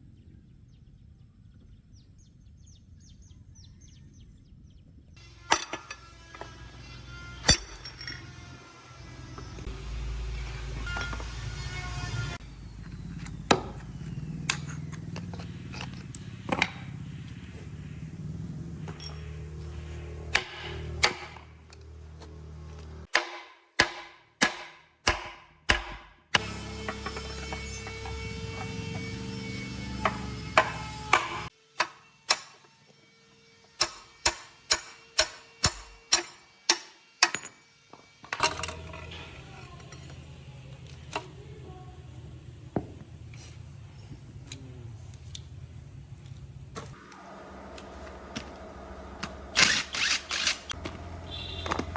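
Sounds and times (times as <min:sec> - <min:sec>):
engine droning: 0:05.2 - 0:23.1, 0:26.4 - 0:31.5, 0:38.4 - 0:51.9
hammer striking metal: 0:05.3 - 0:06.6, 0:07.3 - 0:08.5, 0:20.3 - 0:21.6, 0:23.1 - 0:32.6, 0:33.8 - 0:37.6
low machine hum: 0:38.5 - 0:51.9.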